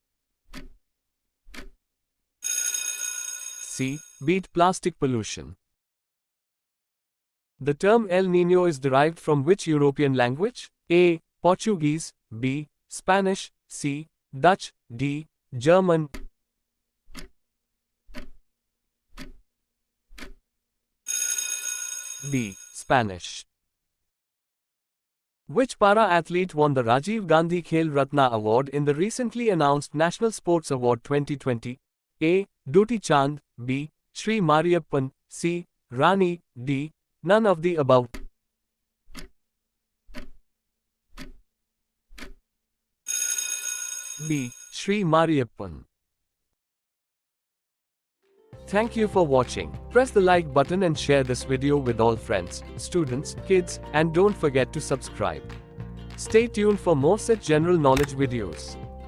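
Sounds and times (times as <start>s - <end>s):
clock ticking: 17.1s - 17.3s, 19.2s - 19.4s, 20.2s - 20.4s, 41.2s - 41.4s.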